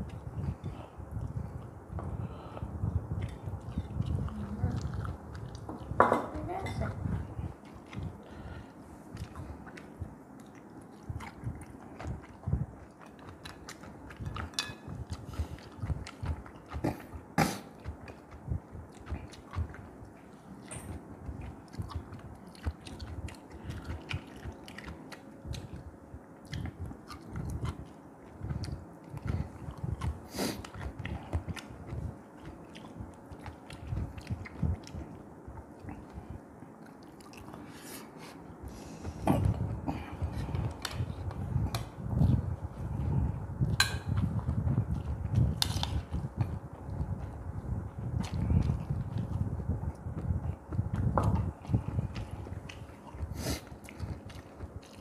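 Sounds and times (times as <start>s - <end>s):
person chewing and lip smacking: 2.8s - 6.0s, 7.0s - 55.0s.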